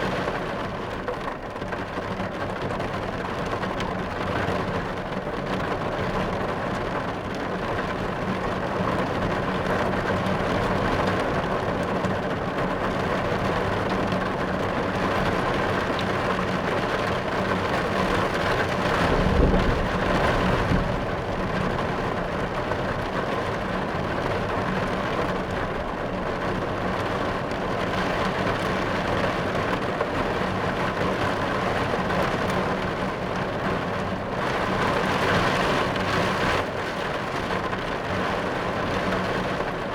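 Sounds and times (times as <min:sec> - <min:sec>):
rain on a car roof: 0:00.0 - 0:39.9
low rumble of thunder: 0:18.0 - 0:25.8.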